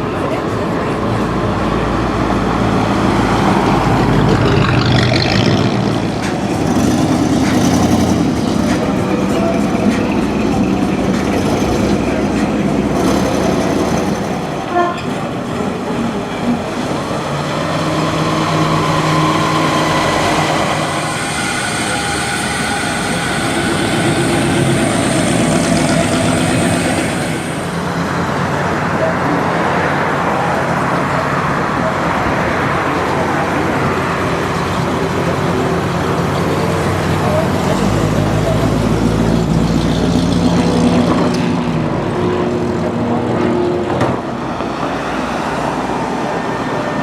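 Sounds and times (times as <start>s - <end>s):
cars driving past: 0.0s - 47.0s
steady traffic noise: 0.0s - 47.0s
steady pitched tone: 2.3s - 29.2s.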